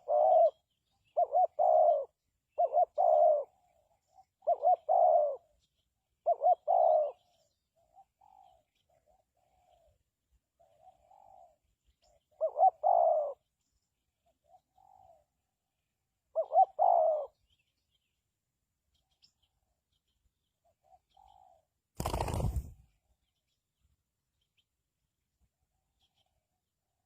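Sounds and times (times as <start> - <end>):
distant dove cooing: 0.0 - 5.5, 6.2 - 10.0, 10.6 - 13.5, 16.3 - 17.4
dove cooing: 0.0 - 5.6, 6.2 - 10.0, 10.6 - 13.5, 14.4 - 15.3, 16.3 - 17.4.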